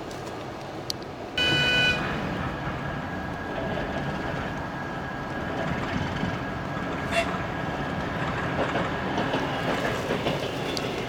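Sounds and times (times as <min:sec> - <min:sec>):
train rumbling on rails: 0:00.0 - 0:11.0
train horn toot: 0:01.4 - 0:02.3, 0:07.1 - 0:07.4.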